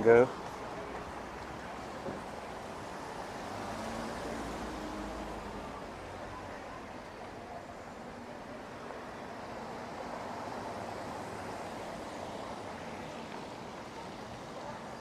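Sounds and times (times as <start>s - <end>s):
distant traffic: 0.0s - 15.0s
urban hum: 0.0s - 15.0s.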